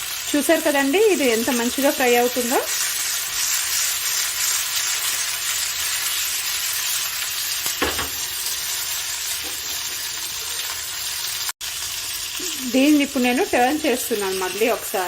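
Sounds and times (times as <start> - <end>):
fish sizzling in hot oil: 0.0 - 15.0.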